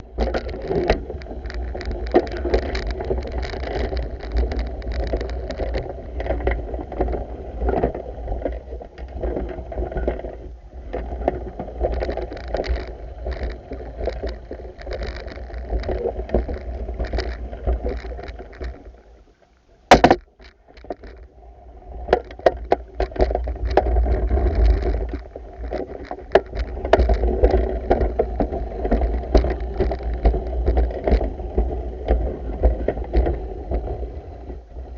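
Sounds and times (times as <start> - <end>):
water sloshing and splashing: 0.0 - 19.0, 21.9 - 34.6
sharp knock: 19.9 - 20.2.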